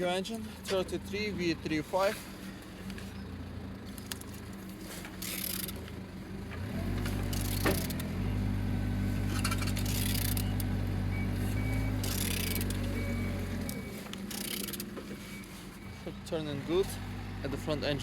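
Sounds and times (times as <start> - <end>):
low mechanical hum: 2.2 - 16.0.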